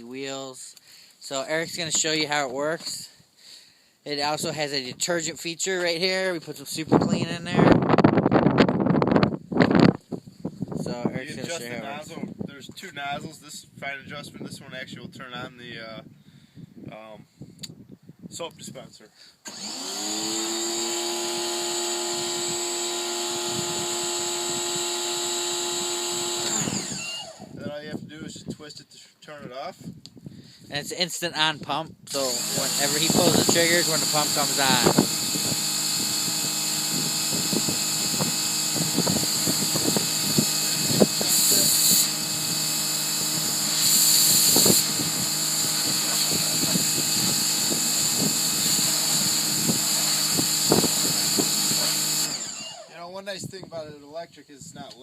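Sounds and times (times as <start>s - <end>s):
pressure washer running: 19.5s - 27.5s, 32.1s - 52.9s
water jet hissing: 39.4s - 52.4s
hiss of water spray: 43.8s - 44.8s.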